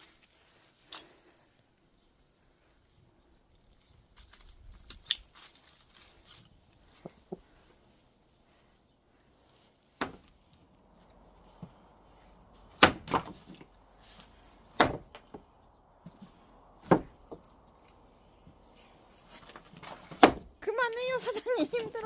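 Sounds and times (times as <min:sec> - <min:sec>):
axe chopping firewood: 0:10.0 - 0:10.4, 0:12.6 - 0:13.7, 0:14.6 - 0:17.5, 0:19.8 - 0:20.5.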